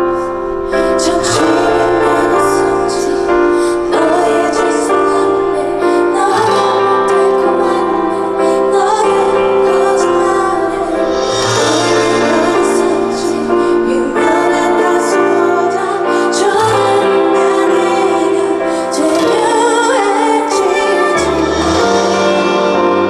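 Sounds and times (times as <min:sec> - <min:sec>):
piano accompaniment: 0:00.0 - 0:23.0
woman singing: 0:00.0 - 0:23.0.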